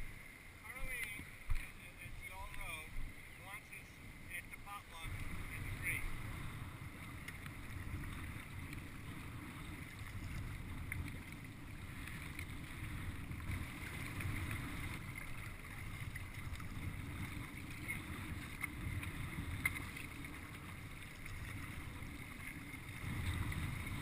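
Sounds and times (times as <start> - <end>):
water washing around a kayak: 0.0 - 24.0
wind buffeting the microphone: 5.0 - 24.0.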